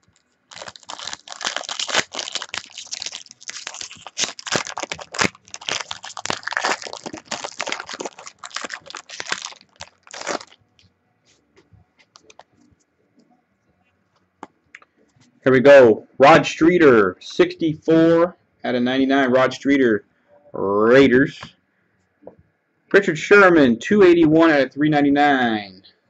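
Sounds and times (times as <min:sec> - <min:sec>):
wrapper tearing and crinkling: 0:00.1 - 0:10.6, 0:12.1 - 0:12.5.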